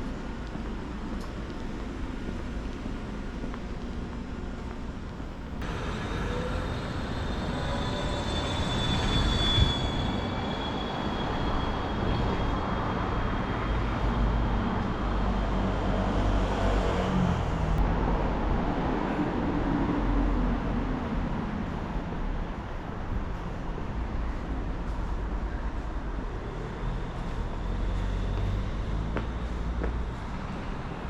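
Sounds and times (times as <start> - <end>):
thin high squeal: 5.8 - 13.1.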